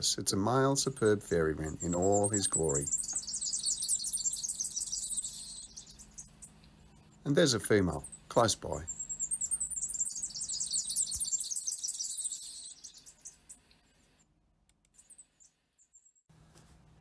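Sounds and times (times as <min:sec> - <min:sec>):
bird reeling trill: 0:00.8 - 0:13.7.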